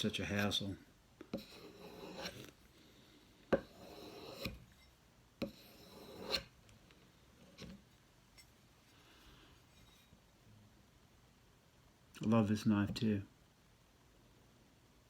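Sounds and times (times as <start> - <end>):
knife scraping along a strop: 1.3 - 2.6, 3.5 - 6.6.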